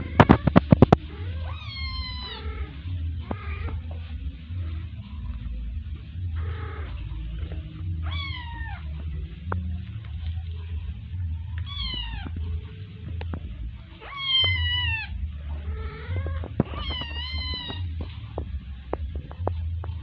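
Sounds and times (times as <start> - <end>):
cat meowing: 0.0 - 3.8, 8.0 - 8.9, 11.6 - 12.4, 14.0 - 18.0
low hum: 0.0 - 20.0.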